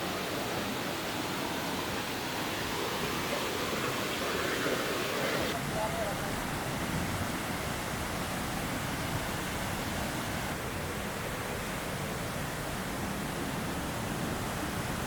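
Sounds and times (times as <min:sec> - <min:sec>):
fast-flowing stream rushing: 0:00.0 - 0:15.0.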